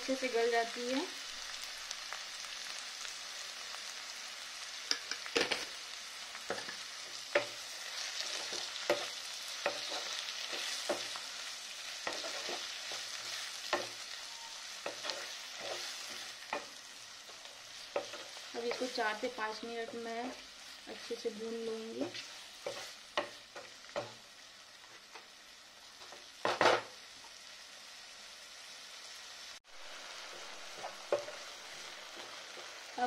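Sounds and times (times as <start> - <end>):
vegetables sizzling in oil: 0.0 - 33.0
wooden spatula scraping and knocking pan: 6.5 - 11.2, 12.0 - 14.0.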